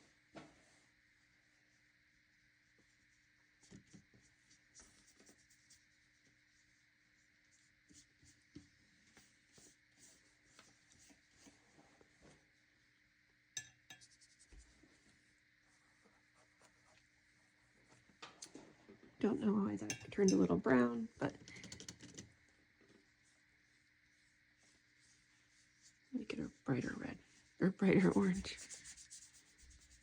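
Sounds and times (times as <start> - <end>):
paintbrush brushing across paper: 0.6 - 12.9, 13.9 - 18.2, 22.6 - 30.0.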